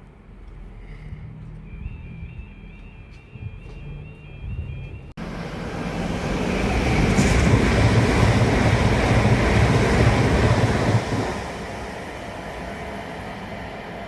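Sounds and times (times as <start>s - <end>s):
train rushing past: 5.2s - 14.0s.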